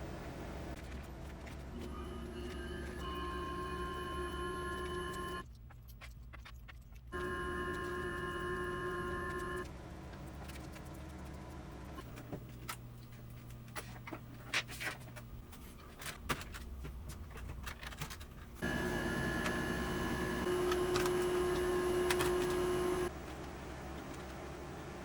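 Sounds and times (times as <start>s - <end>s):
steady hum with held tones: 0.0s - 5.6s, 7.0s - 25.0s.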